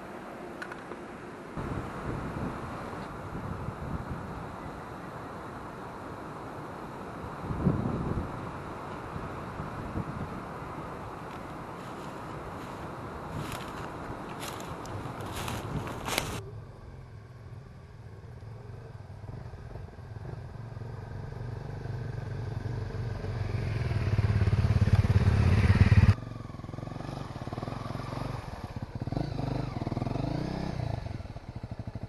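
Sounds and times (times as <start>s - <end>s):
motorcycle engine running: 11.8s - 32.0s.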